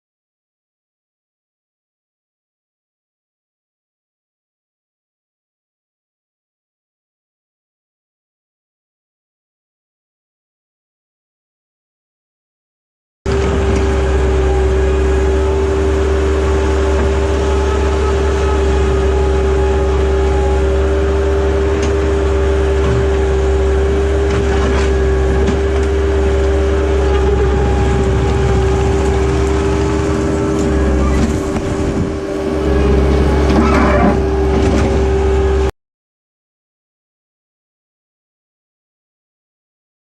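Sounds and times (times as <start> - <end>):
loader engine running: 13.3 - 35.7.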